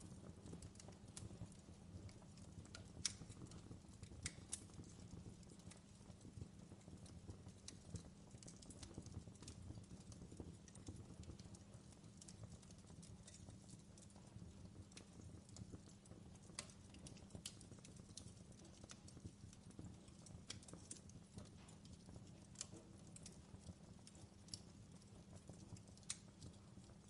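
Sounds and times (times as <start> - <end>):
low steady fire rumble: 0.0 - 27.0
wood fire crackling: 0.0 - 27.0.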